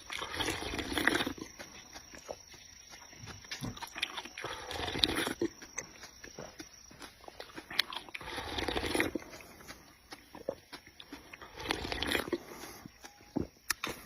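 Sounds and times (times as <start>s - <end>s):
chewing and biting food: 0.0s - 14.0s
wet mouth clicks and smacks: 5.3s - 8.2s, 12.9s - 14.0s.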